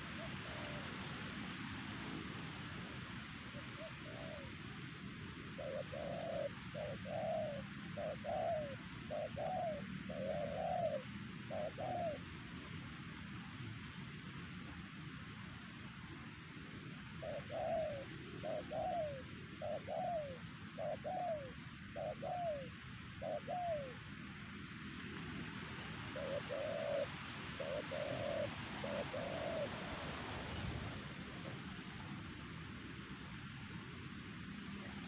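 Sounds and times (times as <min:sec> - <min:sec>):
dove cooing: 0:00.0 - 0:01.1, 0:03.5 - 0:04.6, 0:05.5 - 0:12.3, 0:17.1 - 0:24.0, 0:26.0 - 0:32.0, 0:34.7 - 0:35.0.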